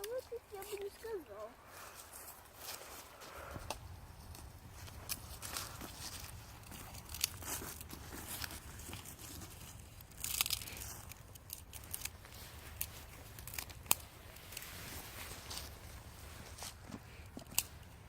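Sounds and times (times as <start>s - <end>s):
dry leaves rustling and crunching: 4.2s - 17.6s.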